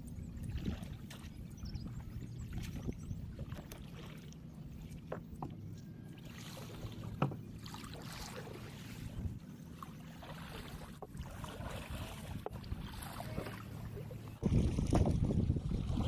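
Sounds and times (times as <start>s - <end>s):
low rumble of wind and water: 0.0s - 16.0s
light knocks on boat: 5.1s - 5.6s, 7.0s - 7.5s.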